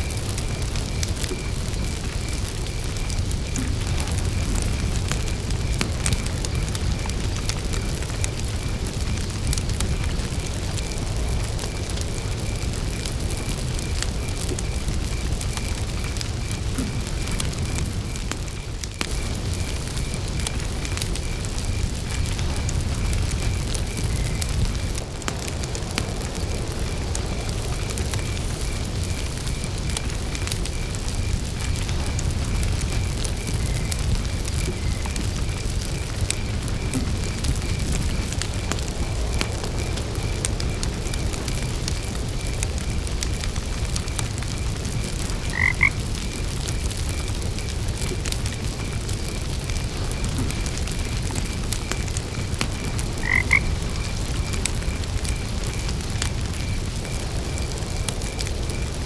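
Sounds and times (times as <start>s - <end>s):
campfire crackling: 0.0s - 59.0s
crickets chirping: 0.0s - 59.0s
frog croaking: 45.4s - 46.0s, 53.0s - 54.1s.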